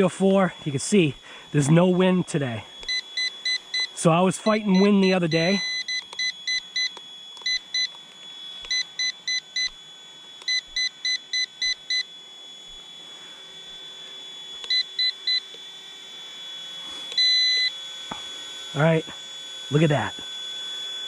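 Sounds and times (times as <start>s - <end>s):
electric motor high whine: 0.0s - 21.0s
transmitter beeping: 1.6s - 12.1s, 14.6s - 15.6s, 17.0s - 18.3s.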